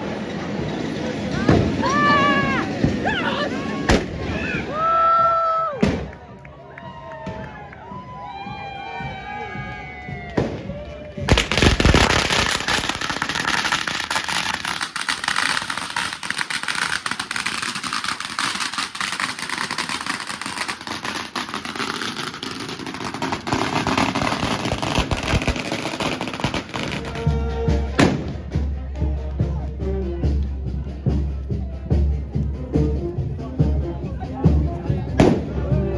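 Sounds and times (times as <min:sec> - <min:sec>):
firecrackers crackling: 0:00.0 - 0:04.9, 0:10.1 - 0:28.7, 0:35.1 - 0:35.9
music with deep bass: 0:26.9 - 0:35.9.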